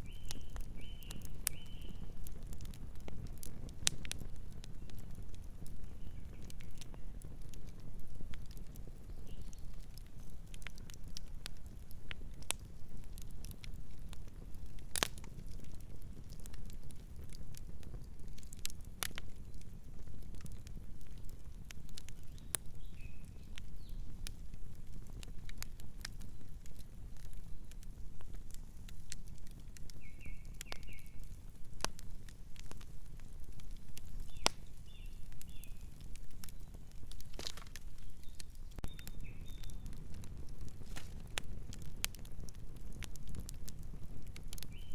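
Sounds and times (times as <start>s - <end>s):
bird chirping: 0.0s - 2.0s, 34.2s - 35.9s, 37.9s - 39.8s
fire crackling and popping: 0.0s - 44.9s.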